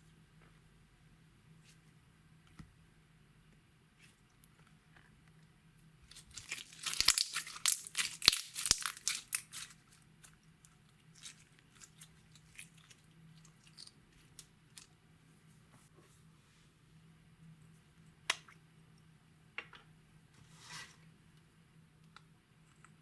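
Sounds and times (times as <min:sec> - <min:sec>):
slime crackling and squelching: 0:06.1 - 0:15.0.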